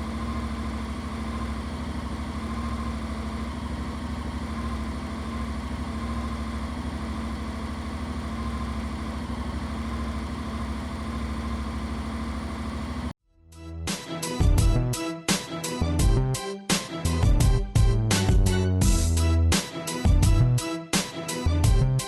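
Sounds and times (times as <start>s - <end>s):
motorcycle engine idling: 0.0s - 13.1s.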